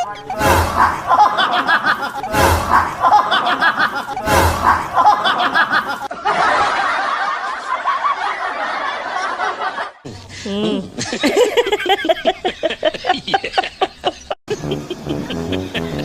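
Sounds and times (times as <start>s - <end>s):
voices: 0.0s - 4.0s
people laughing and snickering: 0.0s - 16.0s
short loud bursts: 0.4s - 1.2s, 2.2s - 3.1s, 4.2s - 5.1s.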